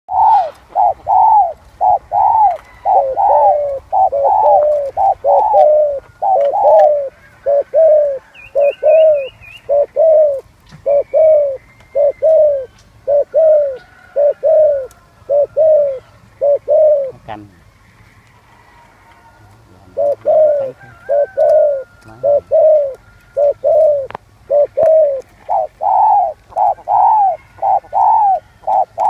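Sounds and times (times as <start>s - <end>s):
dove cooing: 0.1s - 17.4s, 19.8s - 29.0s
faint high bird trill: 0.1s - 18.2s.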